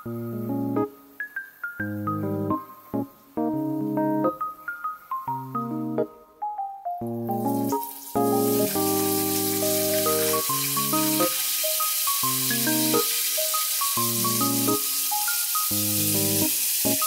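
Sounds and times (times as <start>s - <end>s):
background music with held chords: 0.0s - 17.0s
food frying in hot oil: 7.4s - 17.0s.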